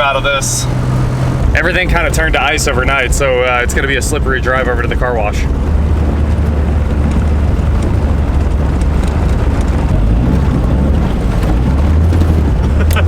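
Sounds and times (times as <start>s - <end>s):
car engine droning: 0.0s - 13.0s
road noise: 0.0s - 13.0s.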